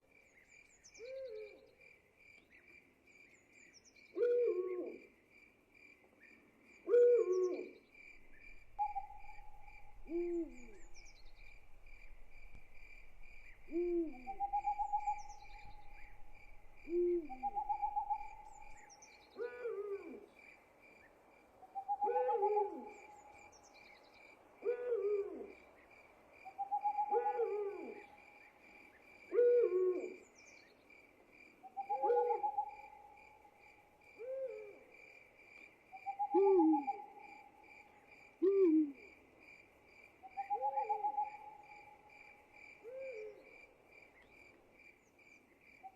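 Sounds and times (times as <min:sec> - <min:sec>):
crickets chirping: 0:00.1 - 0:45.9
owl hooting: 0:04.2 - 0:05.0, 0:06.9 - 0:07.8, 0:08.4 - 0:12.8, 0:13.4 - 0:20.2, 0:21.8 - 0:23.3, 0:26.5 - 0:28.2, 0:29.3 - 0:30.2, 0:31.7 - 0:33.1, 0:34.2 - 0:34.8, 0:36.0 - 0:37.4, 0:38.4 - 0:39.1, 0:40.3 - 0:42.0, 0:42.8 - 0:43.5.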